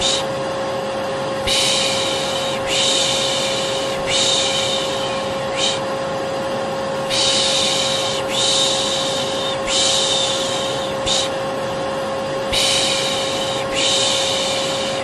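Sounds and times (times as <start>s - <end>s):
person shushing: 0.0s - 0.3s, 1.4s - 5.9s, 7.1s - 11.4s, 12.5s - 15.0s
vacuum cleaner running: 0.0s - 15.0s.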